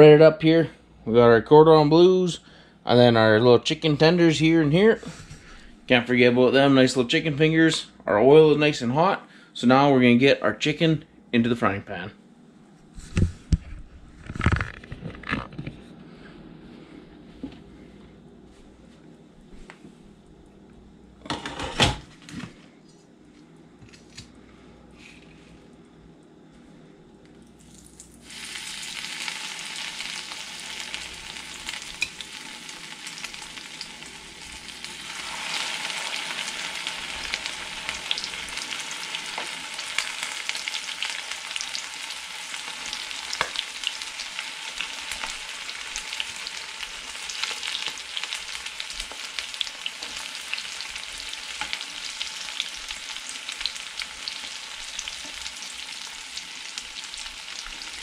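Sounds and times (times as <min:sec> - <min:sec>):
food frying in hot oil: 0:27.6 - 0:58.0.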